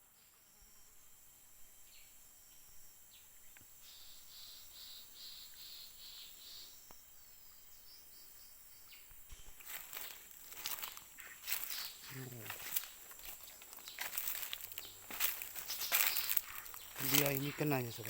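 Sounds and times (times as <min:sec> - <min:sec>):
insects droning: 0:00.0 - 0:18.0
rustling of leaves: 0:09.3 - 0:18.0.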